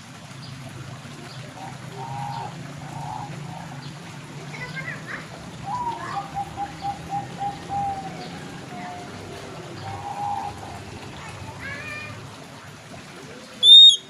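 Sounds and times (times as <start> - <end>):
bird chirping and whistling: 13.6 - 14.0.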